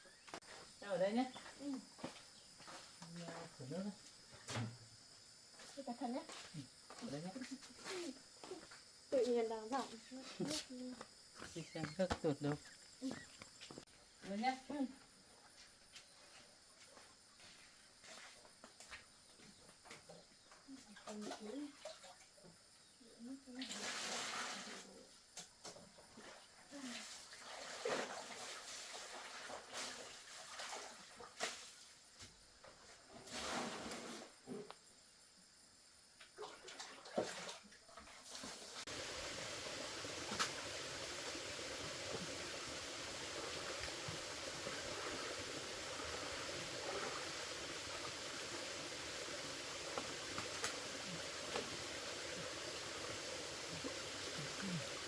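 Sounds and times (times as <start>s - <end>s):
water sloshing and splashing: 26.0s - 32.0s, 36.4s - 55.0s.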